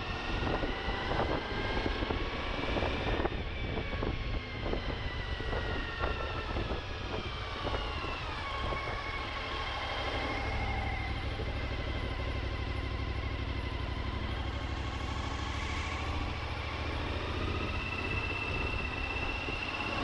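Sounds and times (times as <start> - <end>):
motorcycle engine running: 7.0 - 20.0.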